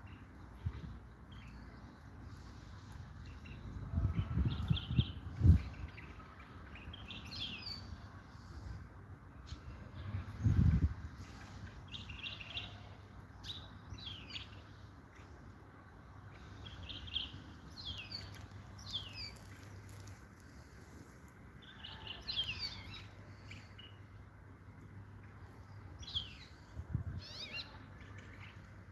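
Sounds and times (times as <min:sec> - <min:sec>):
goldfinch twittering song: 0:16.3 - 0:20.7, 0:27.2 - 0:28.8.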